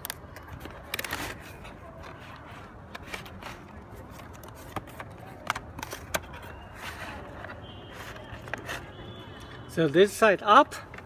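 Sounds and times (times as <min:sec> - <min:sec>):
clicks taps and scraping: 0:00.0 - 0:09.7.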